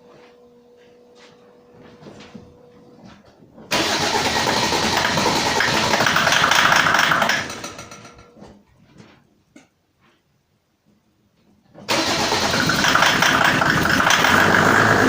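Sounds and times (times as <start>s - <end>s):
diesel engine starting: 3.7s - 8.2s, 11.9s - 15.0s.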